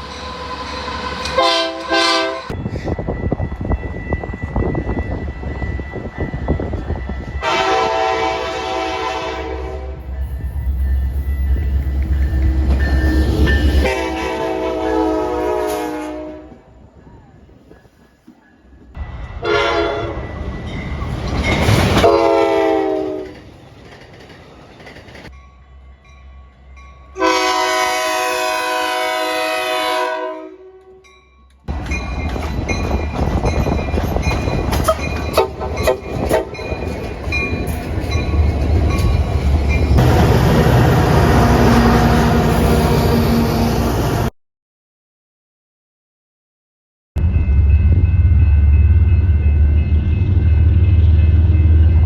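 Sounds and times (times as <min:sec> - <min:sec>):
locomotive horns: 0:00.4 - 0:02.7, 0:07.4 - 0:10.4, 0:11.7 - 0:16.8, 0:19.4 - 0:20.2, 0:21.8 - 0:23.4, 0:27.1 - 0:31.1, 0:34.9 - 0:36.8
wheels clicking over rail joints: 0:22.9 - 0:25.4
train engine running: 0:31.7 - 0:44.3.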